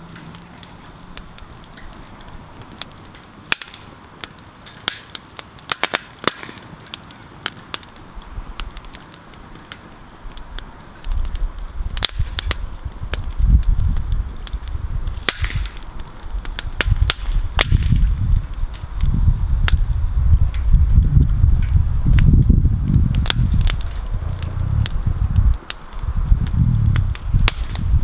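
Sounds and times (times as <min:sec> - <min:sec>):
campfire crackling and popping: 0:00.0 - 0:28.0
low rumble: 0:16.9 - 0:28.0.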